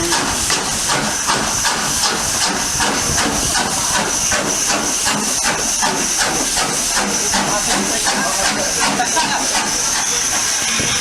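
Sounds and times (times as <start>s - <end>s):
steam hissing: 0.0s - 11.0s
steam locomotive chuffing: 0.0s - 11.0s.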